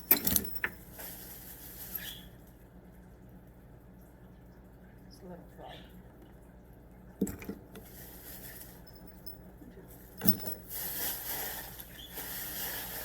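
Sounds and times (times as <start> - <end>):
packets rustling: 10.2 - 13.0.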